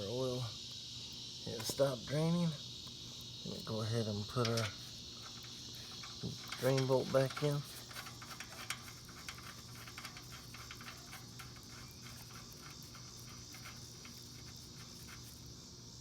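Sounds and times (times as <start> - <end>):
crickets chirping: 0.0 - 16.0
faint clicks and ticks: 4.4 - 15.4.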